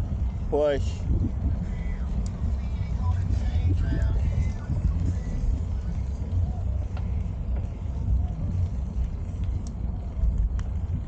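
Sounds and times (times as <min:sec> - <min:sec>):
wind buffeting microphone: 0:00.0 - 0:11.0
faint ticks: 0:02.1 - 0:02.4, 0:09.0 - 0:11.0.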